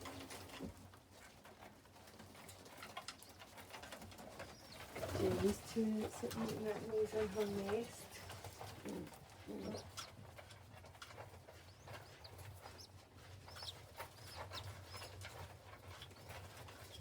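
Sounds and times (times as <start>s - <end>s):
scratchy clicks of birds moving: 0.0s - 17.0s
pigeons cooing: 8.7s - 10.1s.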